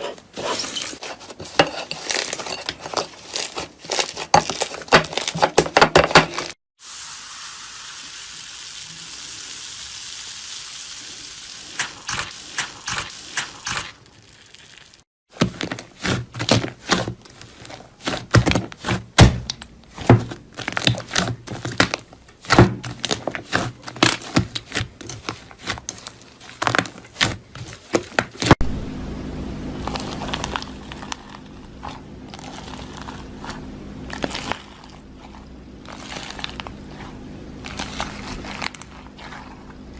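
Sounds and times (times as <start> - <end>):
low hum: 28.6 - 39.9.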